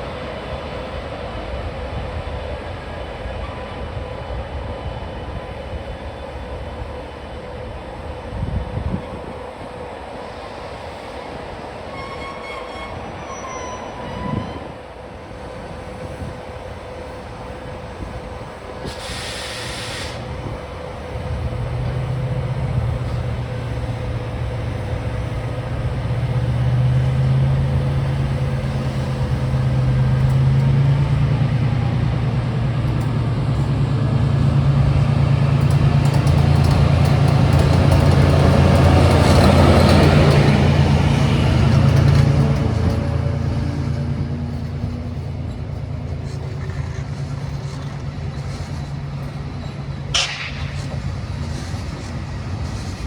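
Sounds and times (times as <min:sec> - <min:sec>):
diesel locomotive engine: 0:00.0 - 0:53.0
short hiss: 0:18.8 - 0:20.3.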